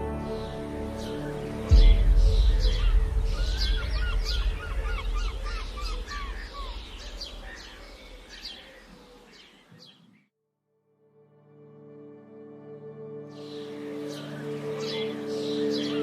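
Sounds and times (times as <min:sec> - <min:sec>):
birds singing: 0:00.0 - 0:10.3, 0:13.3 - 0:16.0
low rumble: 0:01.6 - 0:08.3.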